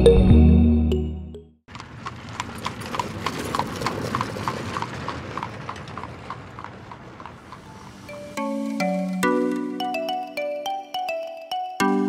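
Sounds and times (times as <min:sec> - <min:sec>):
hooves clip-clopping at a walk: 0:01.7 - 0:08.2.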